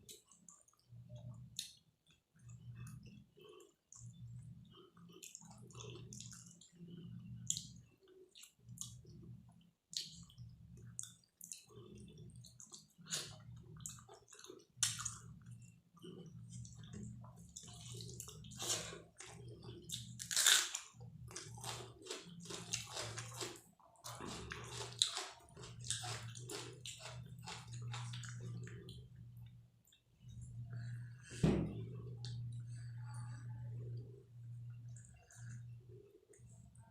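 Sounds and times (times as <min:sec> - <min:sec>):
wet chewing and lip smacks: 0:00.0 - 0:20.3.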